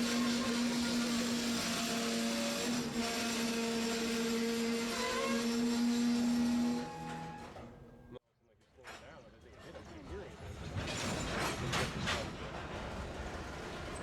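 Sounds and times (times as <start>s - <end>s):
wheels squealing against rails: 0.0s - 7.7s
train wheels rolling on rails: 9.6s - 14.0s.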